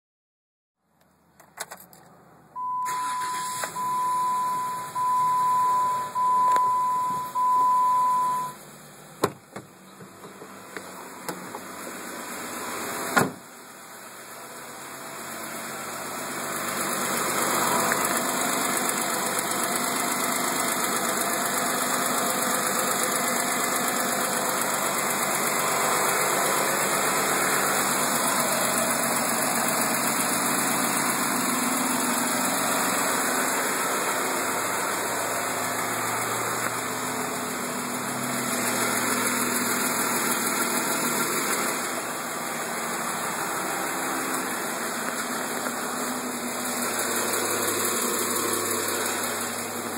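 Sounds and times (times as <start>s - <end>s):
car engine idling: 1.1s - 49.9s
engine ticking: 16.4s - 34.0s, 34.6s - 42.0s, 42.8s - 49.9s.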